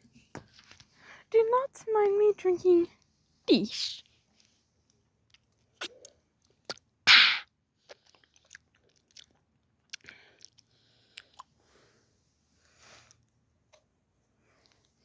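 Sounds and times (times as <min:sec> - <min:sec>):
lip smacks and clicks: 0:05.3 - 0:11.5
person sipping: 0:07.1 - 0:08.2.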